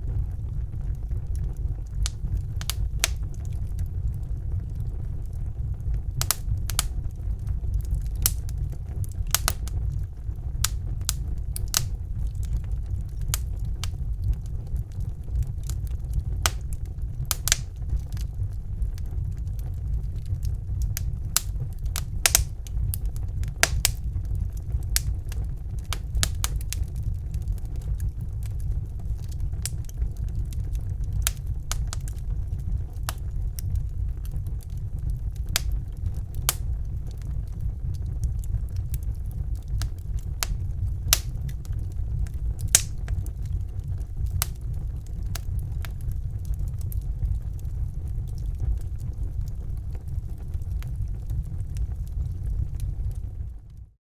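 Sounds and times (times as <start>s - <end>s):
wood fire crackling and popping: 0.0s - 53.9s
low rumble of flames: 0.0s - 54.0s.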